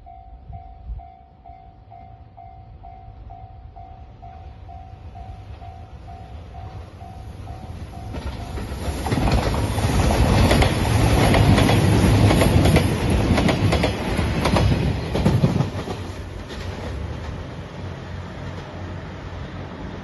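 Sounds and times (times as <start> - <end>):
level-crossing alarm bell: 0.0 - 8.8
train rumbling past: 0.0 - 20.0
train wheels clicking over rail joints: 7.7 - 17.6.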